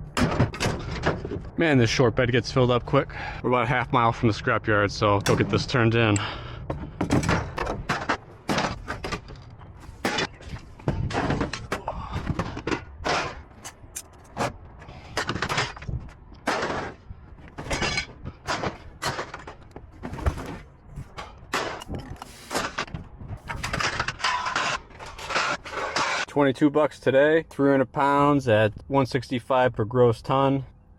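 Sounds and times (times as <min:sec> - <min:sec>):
scrap metal clanking: 0:00.1 - 0:01.6, 0:05.2 - 0:26.3.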